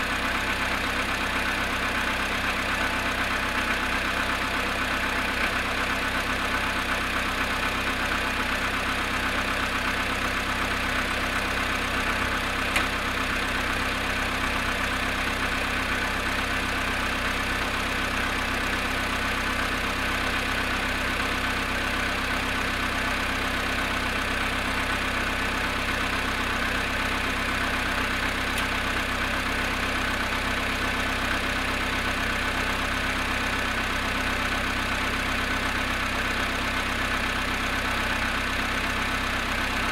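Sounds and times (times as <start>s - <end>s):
car engine idling with knock: 0.0s - 39.9s
small click: 12.7s - 12.9s.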